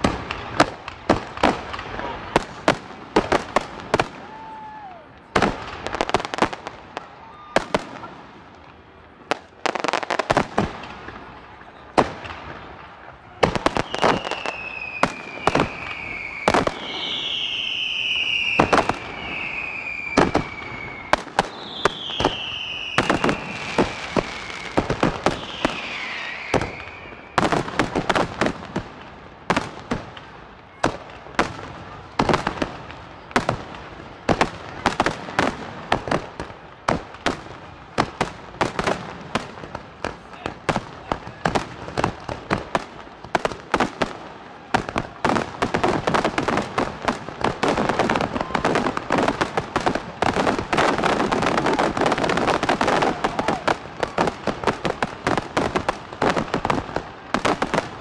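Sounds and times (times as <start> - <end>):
long high firework whistles: 3.9 - 8.0, 13.5 - 28.2, 45.9 - 49.6, 50.4 - 56.8.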